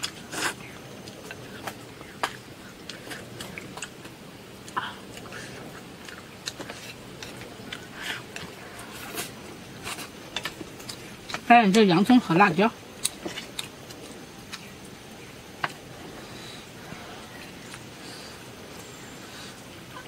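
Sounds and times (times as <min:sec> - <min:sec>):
person chewing and biting: 0:13.0 - 0:14.7.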